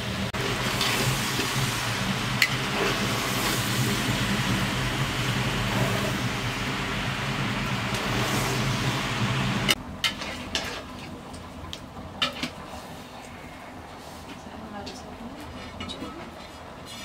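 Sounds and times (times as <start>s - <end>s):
vegetables frying in a pot: 0.0s - 11.5s.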